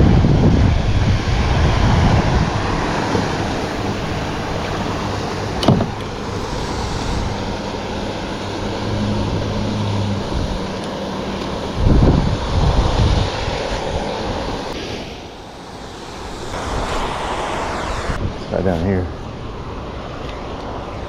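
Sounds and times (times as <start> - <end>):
wind on microphone: 0.0 - 21.0
small waterfall rushing: 1.5 - 18.3.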